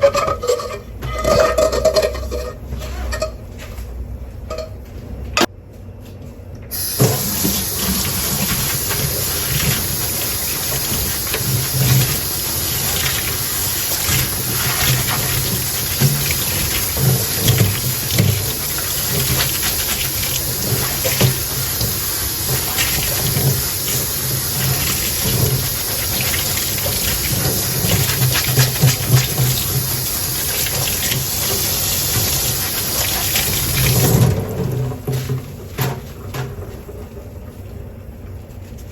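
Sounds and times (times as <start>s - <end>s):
kitchen tap running into sink: 6.7s - 35.3s.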